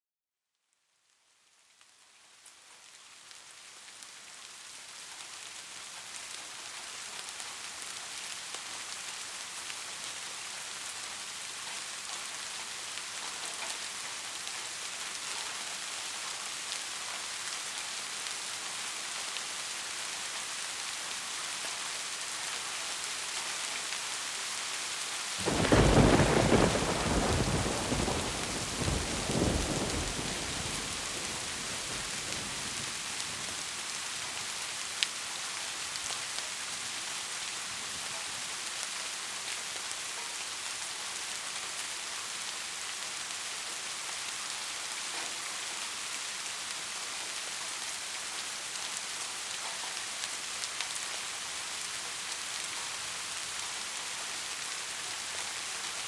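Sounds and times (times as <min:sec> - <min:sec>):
heavy rain hissing: 0:13.9 - 0:56.0
thunderclap rumbling: 0:25.4 - 0:32.8.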